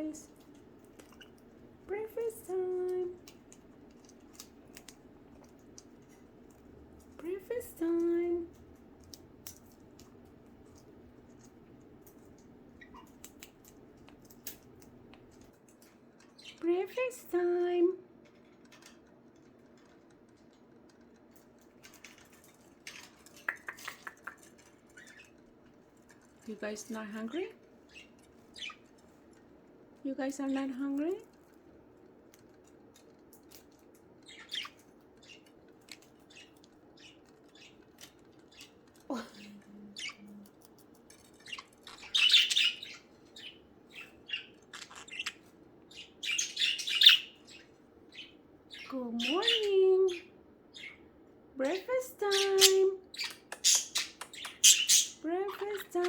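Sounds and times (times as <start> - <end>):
light clicks and taps: 2.9 - 7.2, 8.0 - 16.7, 18.2 - 26.5, 30.9 - 39.1
budgerigars chirping: 27.9 - 28.9, 34.2 - 40.3, 41.4 - 51.0, 52.2 - 55.8.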